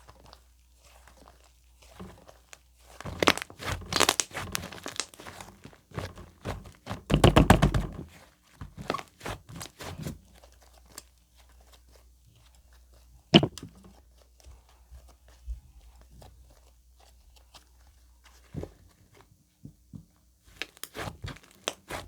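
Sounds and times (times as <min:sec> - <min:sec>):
sticky slime squishing: 0:00.0 - 0:08.2
sharp thunk: 0:13.4 - 0:13.6.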